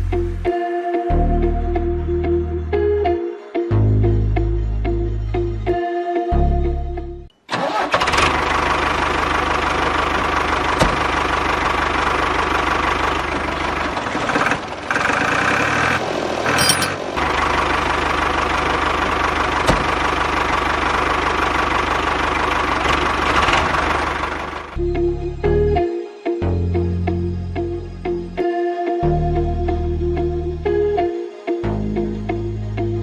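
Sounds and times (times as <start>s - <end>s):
engine running: 7.5s - 24.9s.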